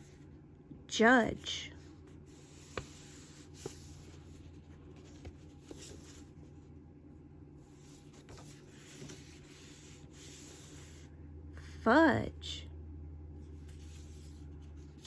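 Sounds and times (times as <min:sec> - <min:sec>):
low steady hum: 0:00.0 - 0:15.0
book pages turning: 0:02.0 - 0:06.5, 0:07.7 - 0:11.1, 0:13.5 - 0:15.0.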